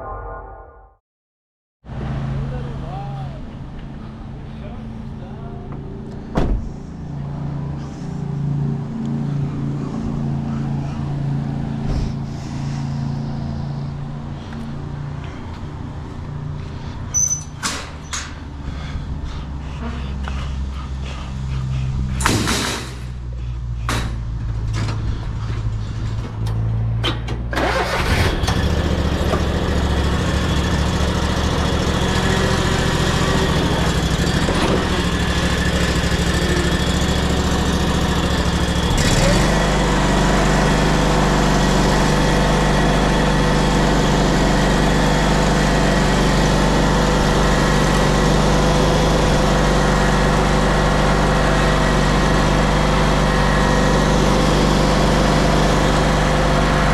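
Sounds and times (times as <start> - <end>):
mower engine running: 27.5 - 56.9.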